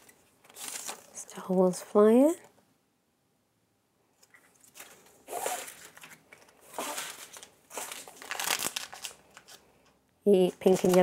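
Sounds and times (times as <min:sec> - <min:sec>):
plastic wrapping crinkling: 0:00.0 - 0:01.8, 0:04.2 - 0:11.0.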